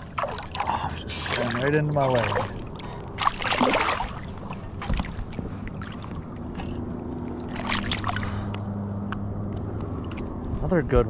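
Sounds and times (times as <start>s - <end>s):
fish splashing at surface: 0.0s - 5.2s, 7.4s - 8.5s
running river water: 0.0s - 9.0s
steady low hum: 0.0s - 11.0s.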